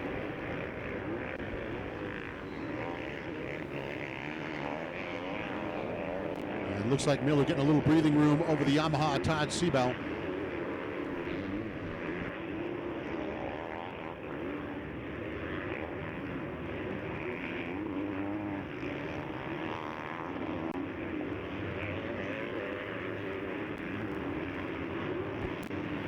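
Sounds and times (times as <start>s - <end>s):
motocross bikes revving: 0.0s - 19.8s.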